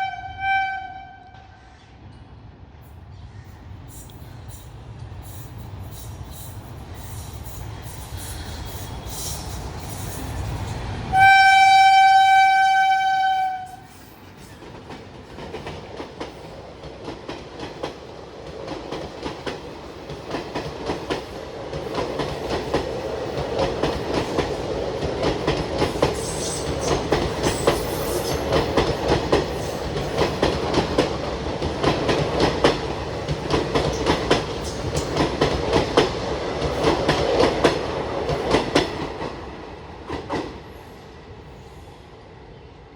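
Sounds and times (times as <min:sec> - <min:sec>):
locomotive horn: 0:00.0 - 0:01.6, 0:11.1 - 0:13.9
train rumbling: 0:00.0 - 0:42.9.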